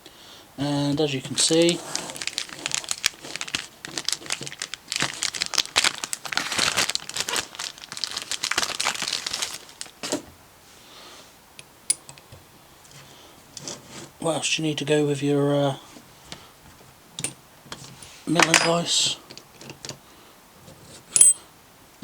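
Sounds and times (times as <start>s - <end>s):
packaging wrap crinkling: 0.8s - 10.2s.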